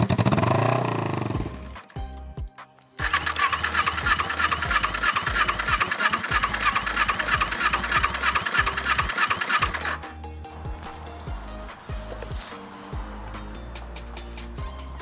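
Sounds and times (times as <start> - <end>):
motorcycle engine cranking: 0.0 - 1.5, 3.0 - 10.1.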